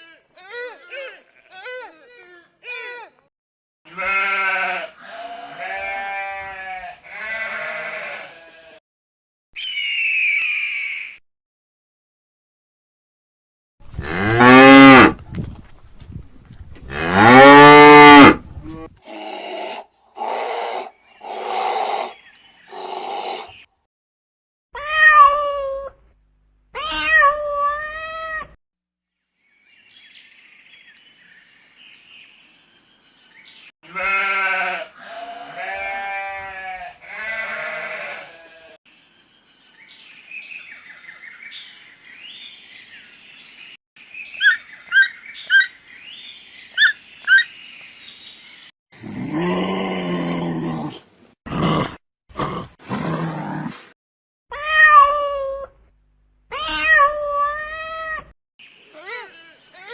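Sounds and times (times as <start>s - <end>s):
pitched animal calls: 44.4s - 45.8s, 46.8s - 47.5s.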